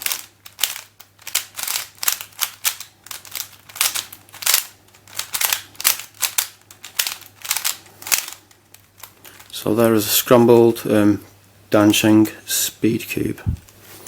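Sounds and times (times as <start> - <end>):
puzzle cube plastic clacks: 0.0 - 9.6.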